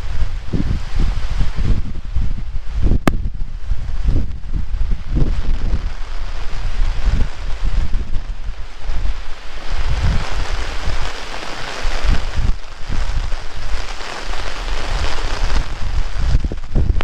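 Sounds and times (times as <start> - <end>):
heavy rain falling: 0.0 - 17.0
wind buffeting microphone: 0.0 - 17.0.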